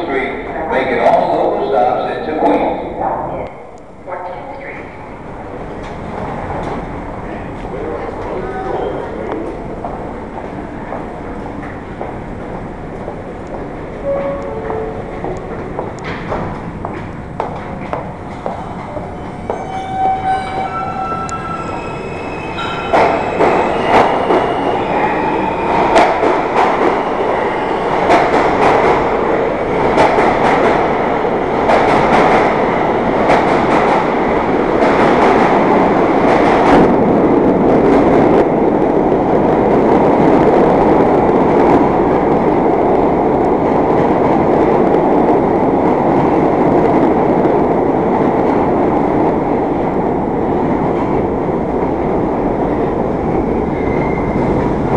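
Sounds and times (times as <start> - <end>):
subway train rumble: 0.0 - 54.9
train wheels clacking on rails: 10.8 - 37.2.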